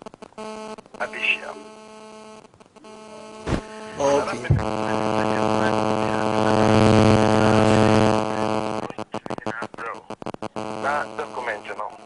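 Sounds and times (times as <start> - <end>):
electrical mains hum: 0.0 - 12.0
loud buzzing hum: 1.6 - 9.5, 10.4 - 11.4.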